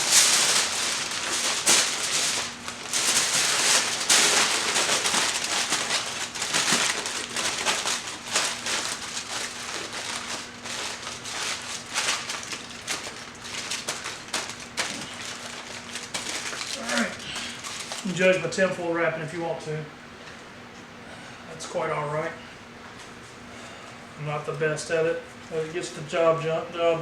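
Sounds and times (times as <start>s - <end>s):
aluminium foil crinkling: 0.0s - 18.5s.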